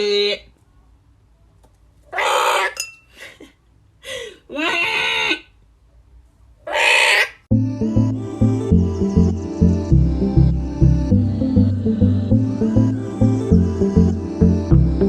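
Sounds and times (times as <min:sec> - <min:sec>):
bird screeching calls: 0:02.1 - 0:02.8, 0:06.7 - 0:07.4.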